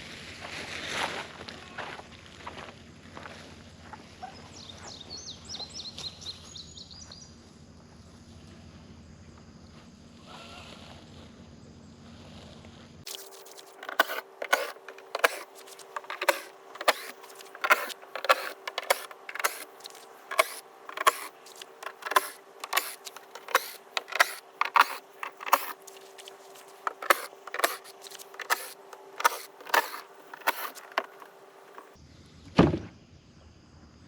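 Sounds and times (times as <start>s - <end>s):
sharp clicks and knocks: 13.1s - 32.0s.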